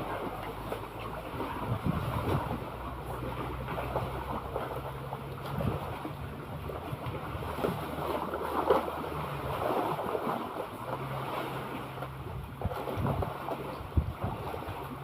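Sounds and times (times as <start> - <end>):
low steady hum: 0.0 - 15.0
sea water splashing and lapping: 0.0 - 15.0
wind buffeting microphone: 1.3 - 4.6, 5.3 - 7.9, 12.2 - 15.0.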